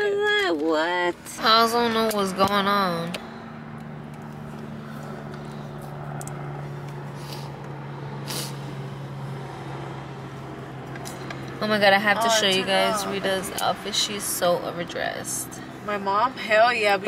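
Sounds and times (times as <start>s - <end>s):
car engine hum inside cabin: 0.0s - 17.0s.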